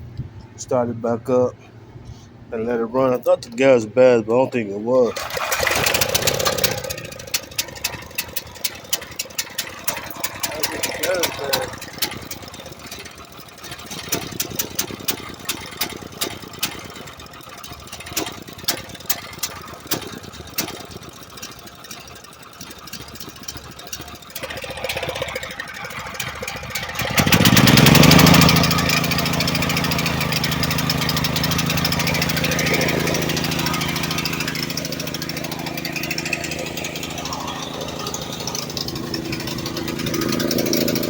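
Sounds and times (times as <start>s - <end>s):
small gasoline engine running: 4.9s - 41.0s
engine clicks and knocks: 5.0s - 41.0s.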